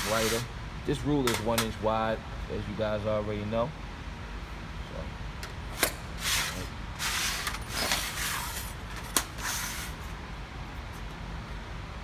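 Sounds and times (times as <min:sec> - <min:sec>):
tool scratching sheet metal: 0:00.0 - 0:00.5, 0:05.8 - 0:10.0.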